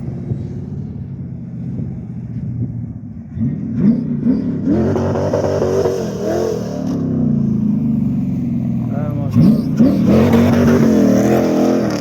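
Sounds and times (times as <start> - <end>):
engine revving and accelerating: 3.2 - 12.0.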